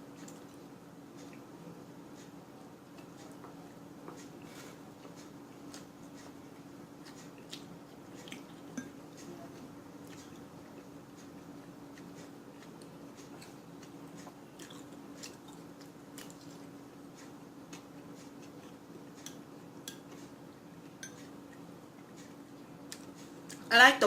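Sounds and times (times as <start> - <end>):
steady low hum: 0.0 - 24.0
person chewing: 7.0 - 20.3, 20.9 - 23.7.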